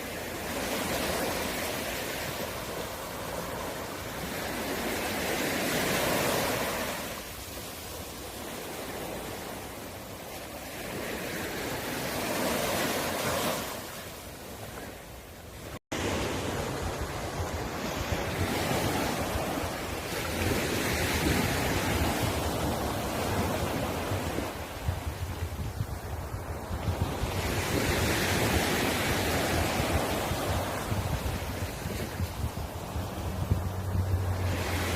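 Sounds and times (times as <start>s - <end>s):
sea waves breaking on beach: 0.0s - 34.9s
wind buffeting microphone: 16.0s - 34.9s.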